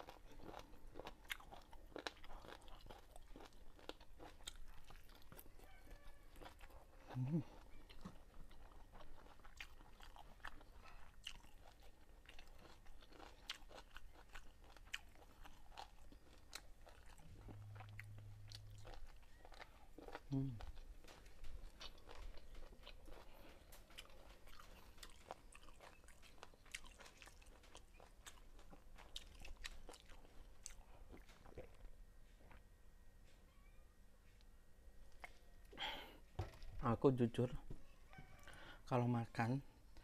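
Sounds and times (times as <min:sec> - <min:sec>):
person chewing and crunching: 0:00.0 - 0:32.7
low hum: 0:17.1 - 0:19.8.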